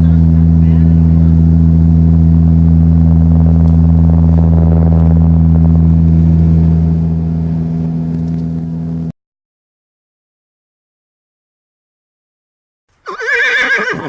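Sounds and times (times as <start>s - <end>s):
propeller plane cabin drone: 0.0s - 9.2s.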